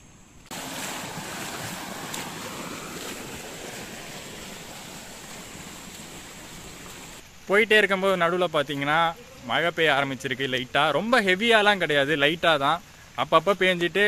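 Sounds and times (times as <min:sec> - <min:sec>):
fast-flowing river water rushing: 0:00.5 - 0:07.2.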